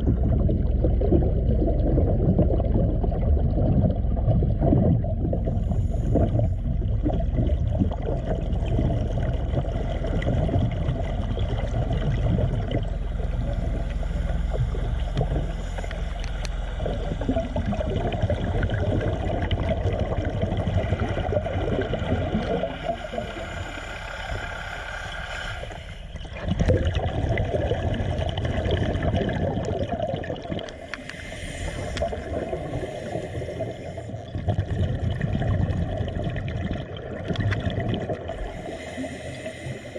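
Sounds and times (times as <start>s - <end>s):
mechanical hum: 0.0s - 29.4s
water churning and gurgling: 0.0s - 39.9s.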